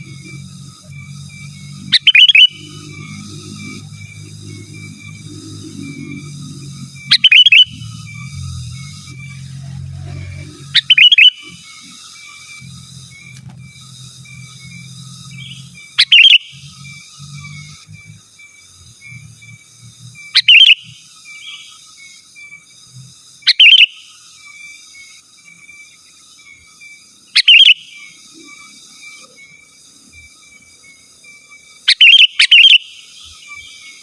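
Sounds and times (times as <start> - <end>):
bulbul bubbly calls: 0.0 - 13.4, 14.3 - 18.0, 20.3 - 21.7, 23.5 - 24.0, 27.4 - 28.6, 31.9 - 33.8
rapid high chirping: 0.0 - 34.0.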